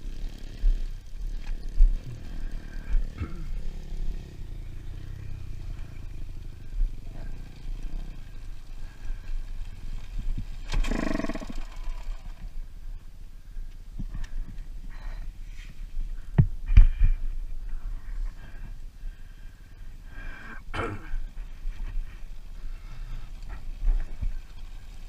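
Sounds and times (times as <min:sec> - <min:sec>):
dirt bike engine running: 0:00.0 - 0:15.0
steady low rumble: 0:00.0 - 0:25.0.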